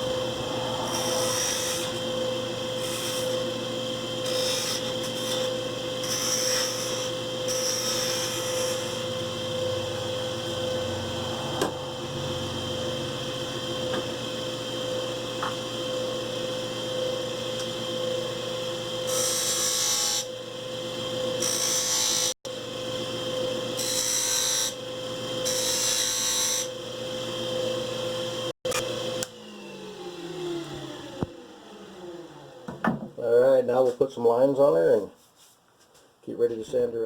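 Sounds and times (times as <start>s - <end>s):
turning tool cutting wood hissing: 0.0s - 13.6s
wood lathe humming: 0.0s - 32.8s.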